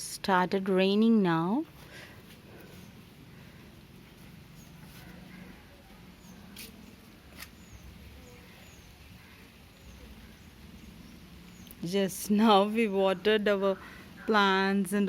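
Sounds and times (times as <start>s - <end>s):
light rain hiss: 1.7s - 13.0s.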